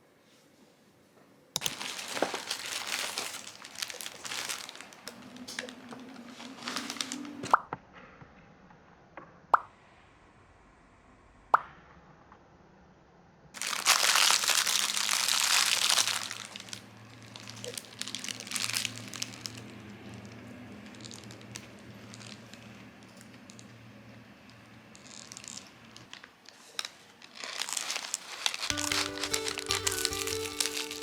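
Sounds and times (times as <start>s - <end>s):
loud rustling or crinkling: 1.6s - 7.5s, 13.6s - 31.0s.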